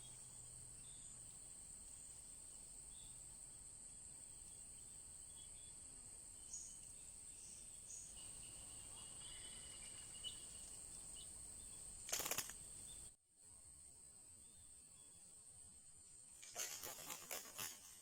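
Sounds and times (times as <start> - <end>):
faint high chirps: 4.4 - 13.1.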